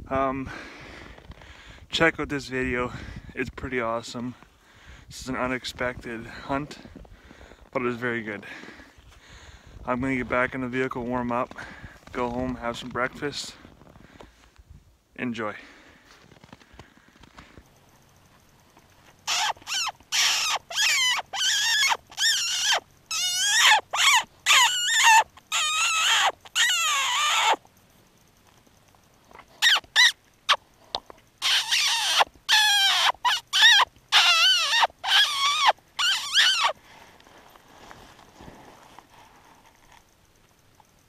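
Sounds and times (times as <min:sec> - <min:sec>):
shrill wavering squeal call: 0:19.2 - 0:27.6, 0:29.6 - 0:30.6, 0:31.4 - 0:36.8.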